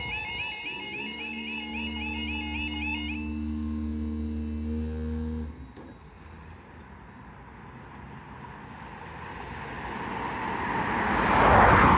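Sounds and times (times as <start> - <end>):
car approaching on road: 0.0 - 11.9.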